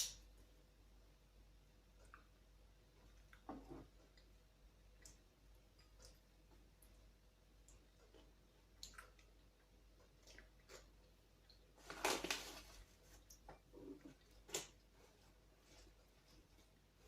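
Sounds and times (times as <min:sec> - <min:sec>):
quiet eating clicks: 0:01.9 - 0:11.7.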